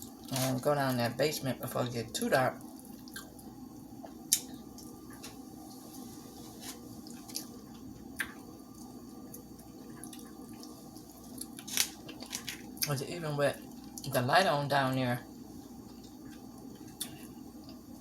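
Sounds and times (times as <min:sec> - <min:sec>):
faint room hum: 0:00.0 - 0:18.0
person chewing: 0:02.8 - 0:03.5, 0:06.6 - 0:12.9, 0:15.8 - 0:17.8.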